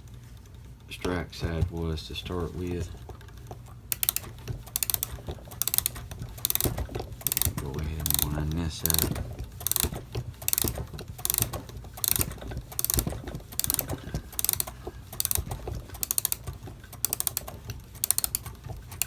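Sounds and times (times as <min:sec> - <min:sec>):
clock ratchet clicking: 0:03.9 - 0:19.0.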